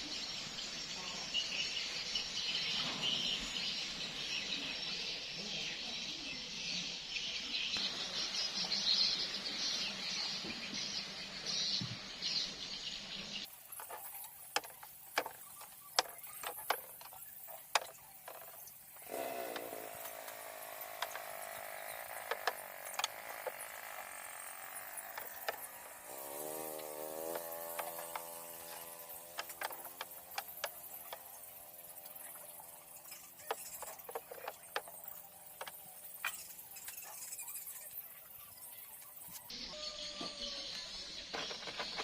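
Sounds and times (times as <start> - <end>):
hiss with chirps: 7.8 - 39.6
small power tool motor running: 13.8 - 37.4.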